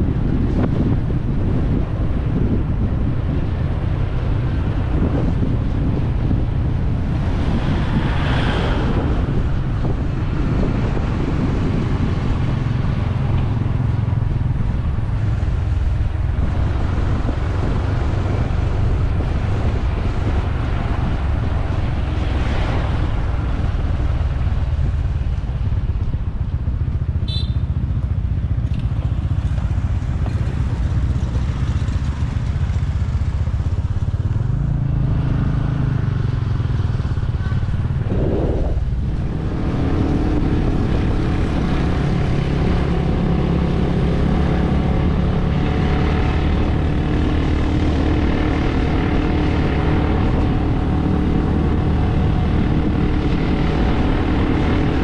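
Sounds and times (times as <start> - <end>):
wind and road rumble: 0.0 - 55.0
motorbike engine running: 24.2 - 55.0.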